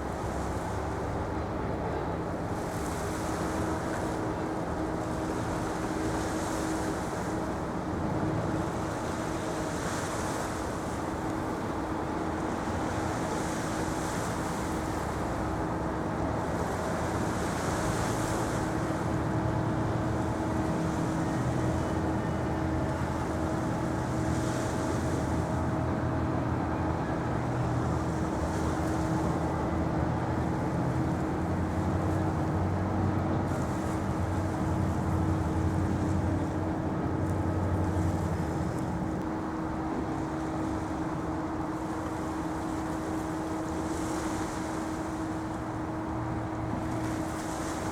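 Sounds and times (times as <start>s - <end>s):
waves washing in: 0.0s - 47.9s
low engine drone: 15.2s - 47.7s.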